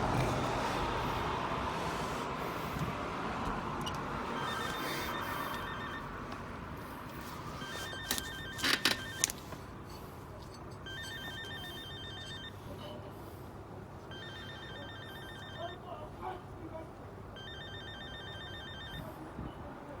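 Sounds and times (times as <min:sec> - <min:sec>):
phone ringing: 0:03.6 - 0:13.1, 0:14.0 - 0:16.2, 0:17.3 - 0:19.4.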